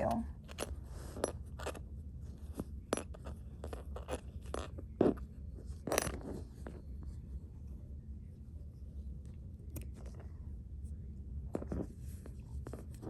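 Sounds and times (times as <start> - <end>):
low steady hum: 0.0 - 13.0
light clicks and scrapes: 8.7 - 10.5, 11.5 - 13.0.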